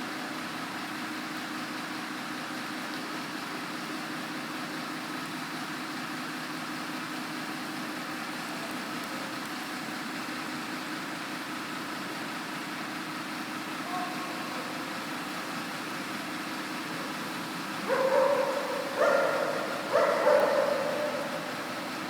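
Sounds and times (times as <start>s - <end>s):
washing brushes and water spray: 16.9s - 22.0s
motor hum: 17.2s - 22.0s.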